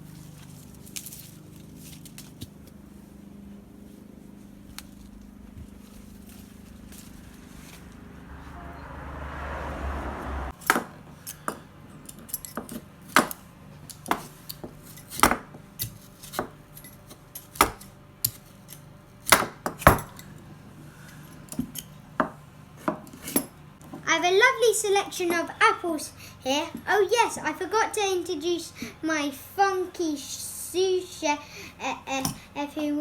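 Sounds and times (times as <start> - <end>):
brief rushing noise: 8.2 - 10.5.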